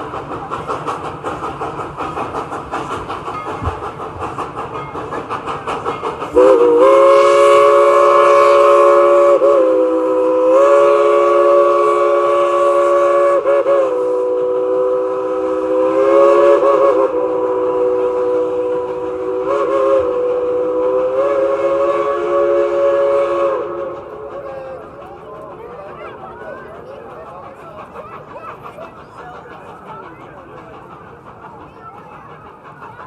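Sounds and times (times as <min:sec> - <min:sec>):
steam locomotive chime whistle: 0:04.7 - 0:24.3.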